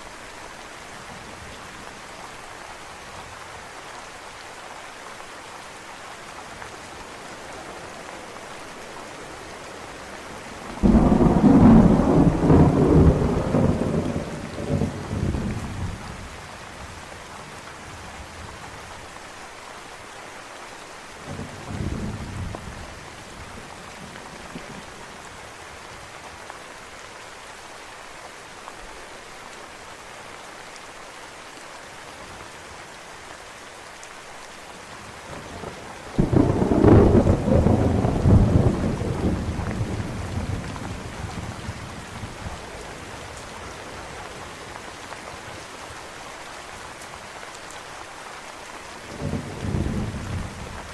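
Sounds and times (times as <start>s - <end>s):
steady rain: 0.0s - 50.9s
thunder rumbling: 10.6s - 16.0s, 35.5s - 42.6s.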